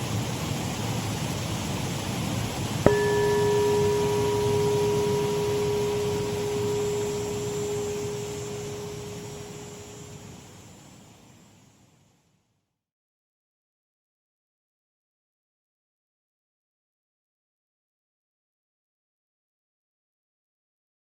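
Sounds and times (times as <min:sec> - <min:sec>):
shallow waterfall running: 0:00.0 - 0:10.3
bell ringing with long tone: 0:02.9 - 0:10.6.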